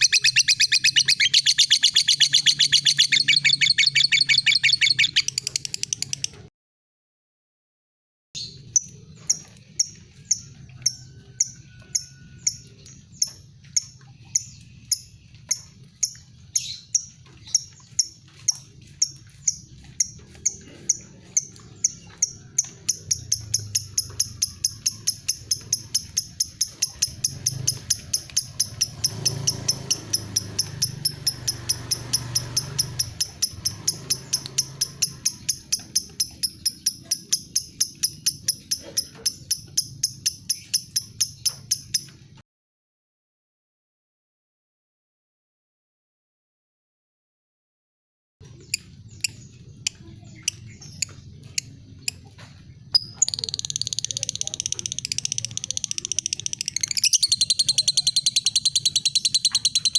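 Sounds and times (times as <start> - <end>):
lovebird ticking call: 0.0 - 6.4, 8.4 - 42.2, 52.9 - 59.9.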